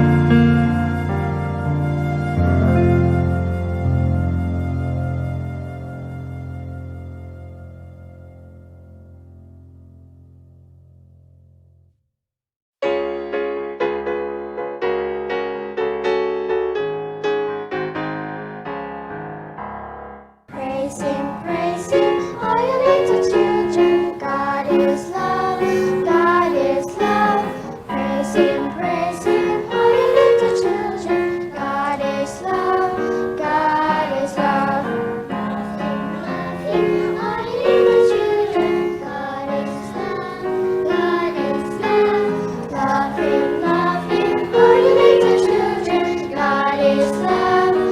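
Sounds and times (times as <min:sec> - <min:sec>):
keyboard chords: 0:00.0 - 0:11.0, 0:12.8 - 0:47.9
group of voices singing: 0:20.5 - 0:47.9.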